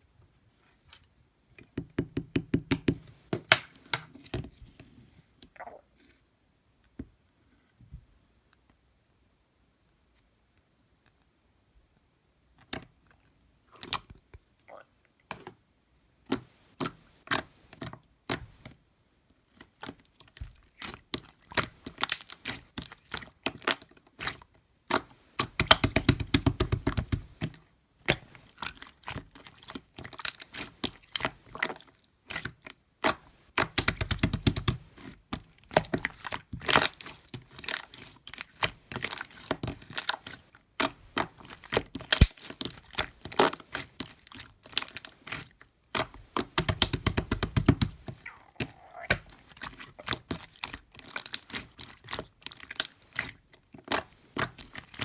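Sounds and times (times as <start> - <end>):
slime crackling and squelching: 19.5 - 55.0
slime squishing and popping: 20.8 - 34.8, 35.4 - 55.0.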